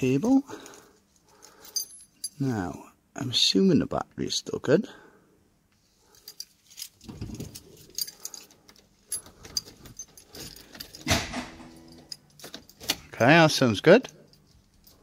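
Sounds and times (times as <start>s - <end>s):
car keys jangling: 6.1s - 11.1s, 11.7s - 13.0s, 14.1s - 15.0s.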